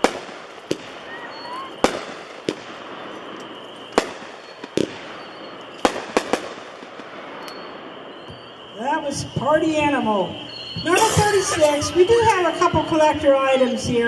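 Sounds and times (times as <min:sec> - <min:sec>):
firework bangs: 0:00.0 - 0:14.0.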